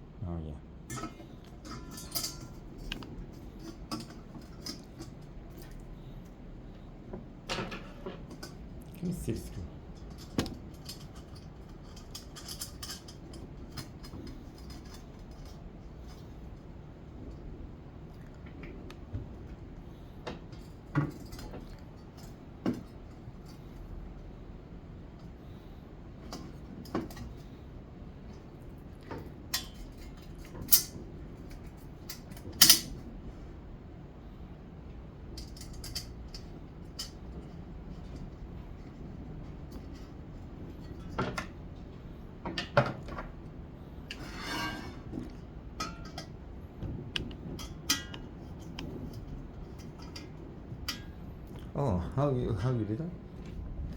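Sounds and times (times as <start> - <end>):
tools clinking on frying pan: 0.9 - 2.6.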